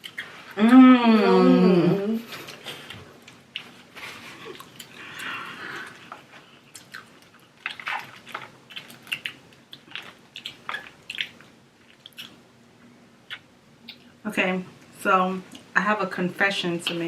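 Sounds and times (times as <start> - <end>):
wet chewing and smacking: 0.0 - 0.6, 2.3 - 12.5, 13.2 - 14.2.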